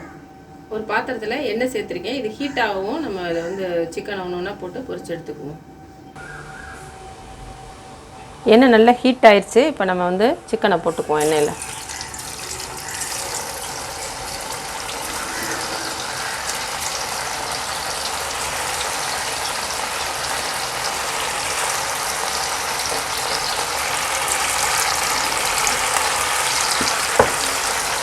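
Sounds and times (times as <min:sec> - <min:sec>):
chicken deep-frying in oil: 0:11.2 - 0:28.0.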